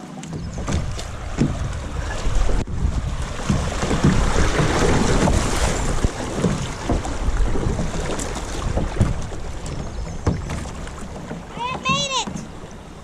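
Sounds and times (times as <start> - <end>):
splashing water: 0.0 - 13.0
wind buffeting microphone: 0.0 - 13.0
sharp knocks: 3.4 - 5.5.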